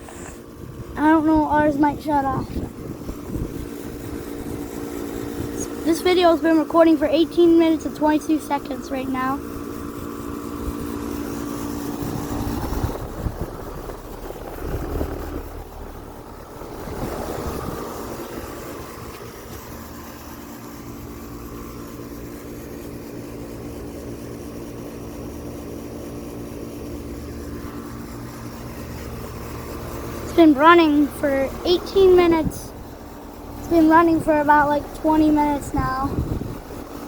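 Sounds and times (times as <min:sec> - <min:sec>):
air conditioner unit humming: 0:00.0 - 0:37.0
wind rumble on microphone: 0:00.5 - 0:05.9, 0:09.7 - 0:19.9, 0:33.9 - 0:37.0.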